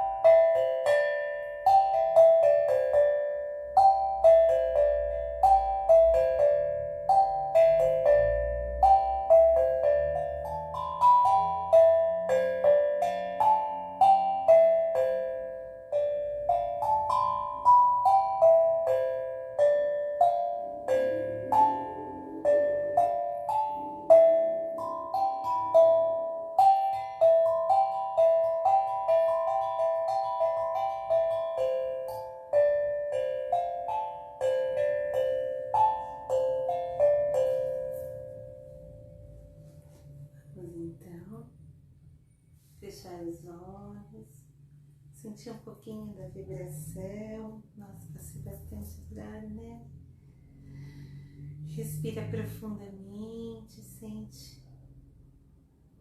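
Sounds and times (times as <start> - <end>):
steel drum melody: 0.0 - 41.6.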